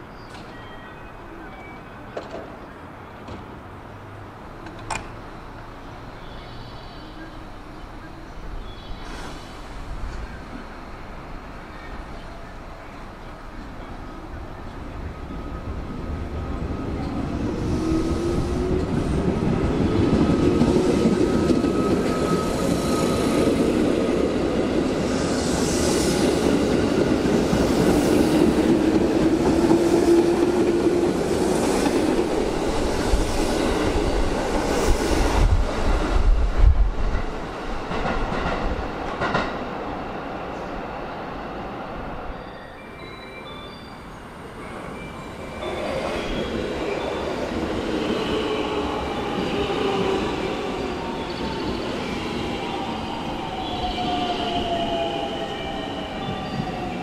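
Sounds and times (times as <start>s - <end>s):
train cars rumbling by: 0.0s - 57.0s.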